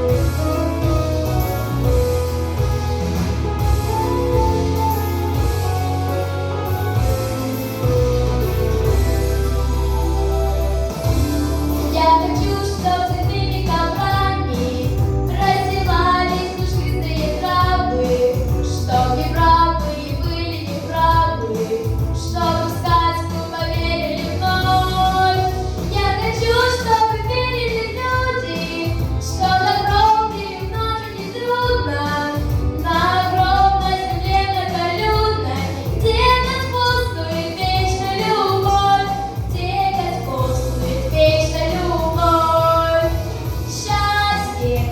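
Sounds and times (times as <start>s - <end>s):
instrumental accompaniment: 0.0s - 44.9s
pulsing bass: 0.0s - 44.9s
girl singing: 11.9s - 44.9s.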